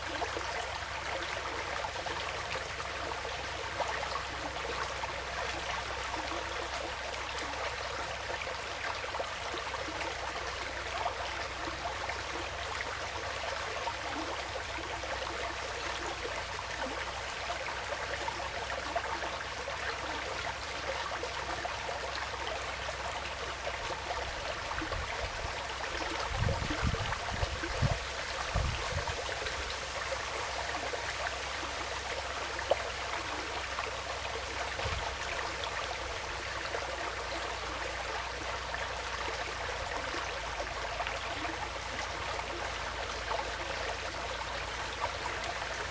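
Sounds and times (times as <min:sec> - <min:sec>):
stream trickling and splashing: 0:00.0 - 0:45.9.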